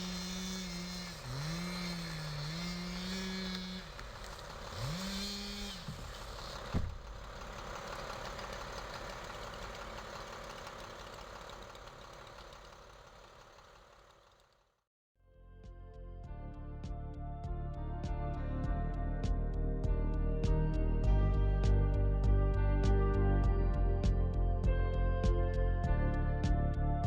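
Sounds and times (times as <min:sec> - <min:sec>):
small petrol engine running: 0:00.0 - 0:14.8.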